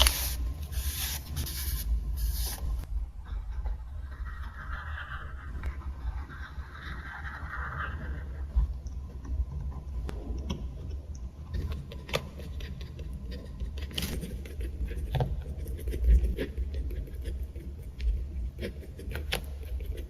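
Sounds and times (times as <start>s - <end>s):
crisp paper scrape or peel: 0.0s - 2.8s
steady low rumble: 0.0s - 13.8s.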